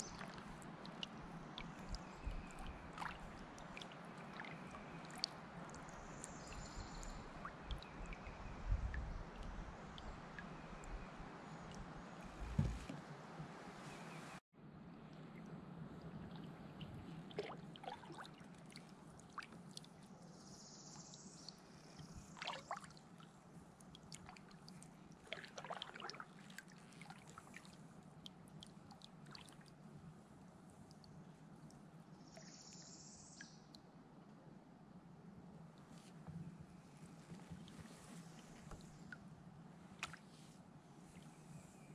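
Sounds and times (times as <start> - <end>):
paddle splashing: 0.0 - 8.3, 11.7 - 14.3, 15.1 - 19.9, 22.4 - 23.0, 24.1 - 27.8, 40.0 - 41.6
water dripping off paddle: 0.0 - 8.3, 16.3 - 20.0, 22.0 - 23.0, 23.8 - 27.7.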